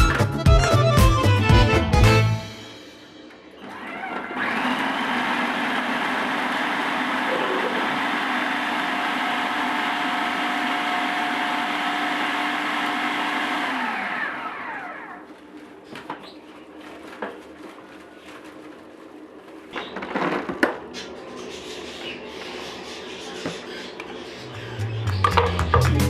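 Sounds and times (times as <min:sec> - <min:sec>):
electric blender running: 0:03.6 - 0:15.4.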